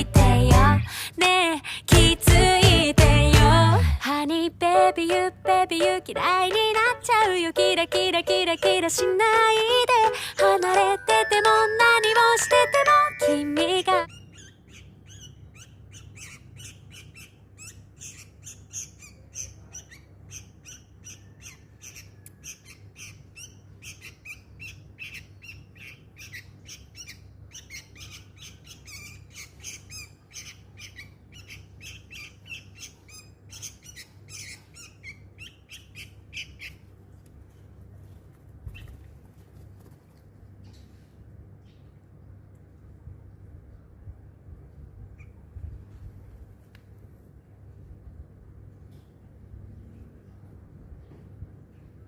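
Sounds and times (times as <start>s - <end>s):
steady low hum: 0.0s - 14.2s
bird chirping and squawking: 14.0s - 36.9s.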